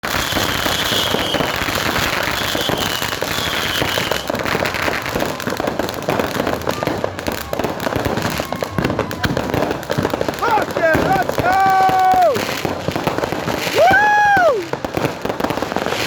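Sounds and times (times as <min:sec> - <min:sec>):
high firework whistle: 0:00.0 - 0:10.3
fireworks cracking and popping: 0:00.0 - 0:16.0.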